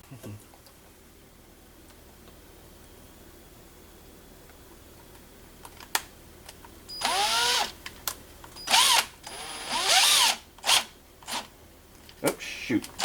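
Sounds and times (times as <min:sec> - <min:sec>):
power drill motor whine: 0:07.0 - 0:07.8, 0:08.6 - 0:11.4.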